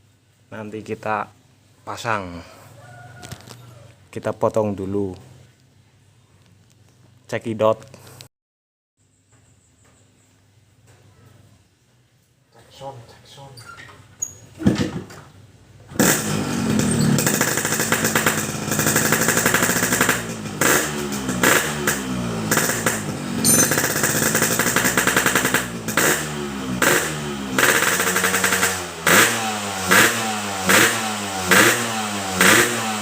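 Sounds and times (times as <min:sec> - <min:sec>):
motorcycle engine revving: 0:15.9 - 0:33.0.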